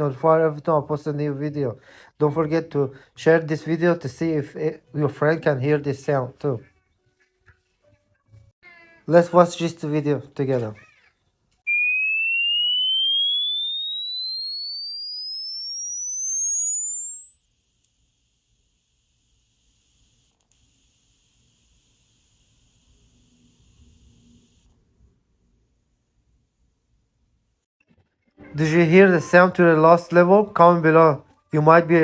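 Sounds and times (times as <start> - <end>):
rising sine tone: 11.7 - 24.8.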